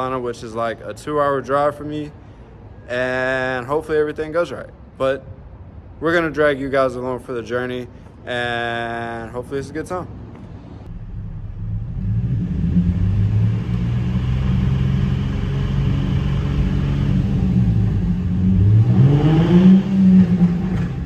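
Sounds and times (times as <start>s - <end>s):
car engine accelerating: 10.9s - 21.0s.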